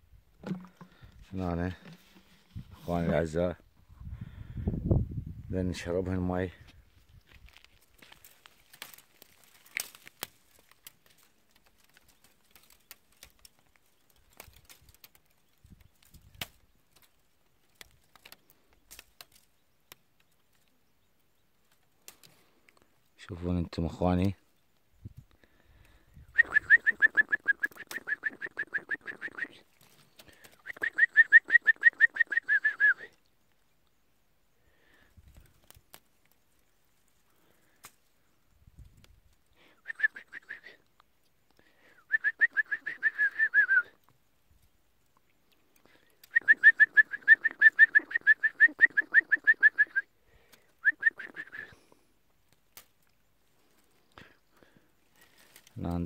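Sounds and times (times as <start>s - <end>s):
nestling birds chirping: 7.0s - 23.2s, 25.7s - 32.4s.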